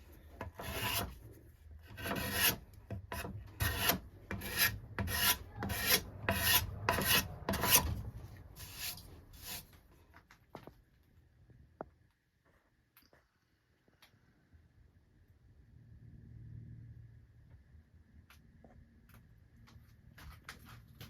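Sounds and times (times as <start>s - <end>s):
hand rasp cutting wood: 0.4s - 8.0s, 8.6s - 9.7s.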